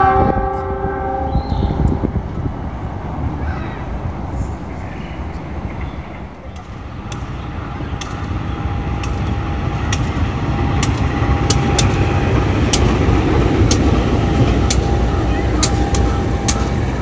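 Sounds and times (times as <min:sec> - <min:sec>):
train rumbling past: 0:00.0 - 0:17.0
wheels clacking over rail joints: 0:01.8 - 0:17.0
faint steady whine: 0:01.9 - 0:08.7.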